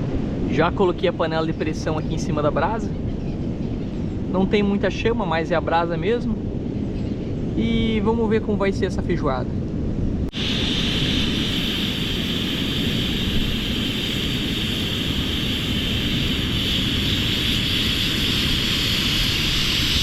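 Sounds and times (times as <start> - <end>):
wind buffeting microphone: 0.0 - 20.0
steady high hiss: 10.3 - 20.0.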